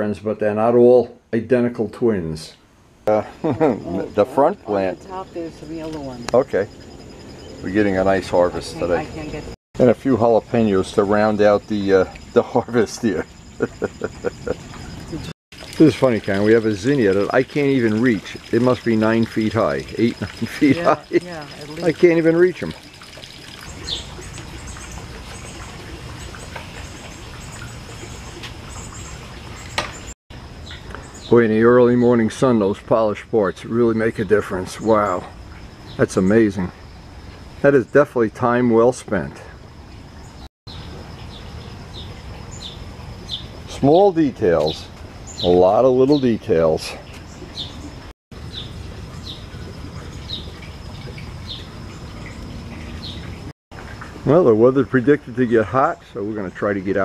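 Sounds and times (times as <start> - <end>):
thin steady high tone: 3.1 - 22.8
bird chirping: 10.6 - 22.7, 23.4 - 32.5, 40.2 - 53.4.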